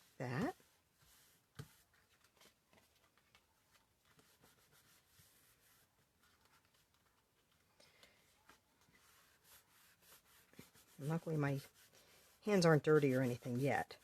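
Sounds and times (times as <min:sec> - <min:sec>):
paper rustling and tapping: 0:01.0 - 0:05.4, 0:06.1 - 0:09.1.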